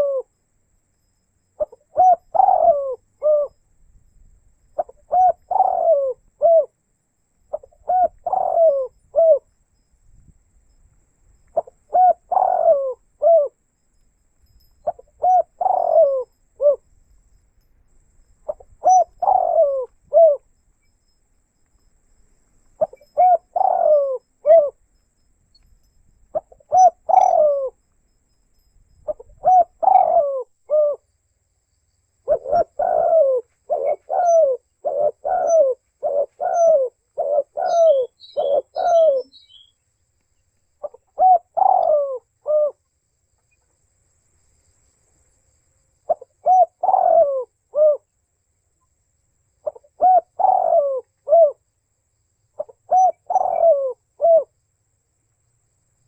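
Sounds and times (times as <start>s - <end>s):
dove cooing: 0.0s - 0.3s, 1.6s - 3.6s, 4.8s - 6.8s, 7.5s - 9.5s, 11.6s - 13.6s, 14.8s - 16.9s, 18.4s - 20.5s, 22.8s - 24.8s, 26.3s - 27.8s, 29.0s - 31.0s, 32.2s - 39.7s, 40.8s - 42.8s, 46.1s - 48.1s, 49.6s - 51.6s, 52.6s - 54.6s
small bird chirping: 0.9s - 6.7s, 11.4s - 21.9s, 22.6s - 31.0s, 32.2s - 42.7s.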